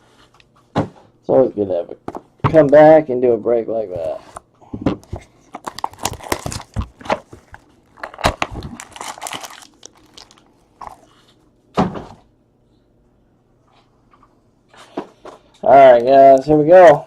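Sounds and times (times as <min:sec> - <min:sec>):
plastic wrap and cardboard crinkling: 0:05.0 - 0:11.5.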